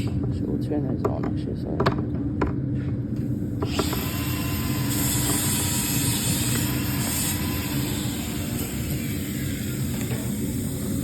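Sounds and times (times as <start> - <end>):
extraction fan drone: 0.0 - 11.0
compressed gas hissing: 3.2 - 11.0.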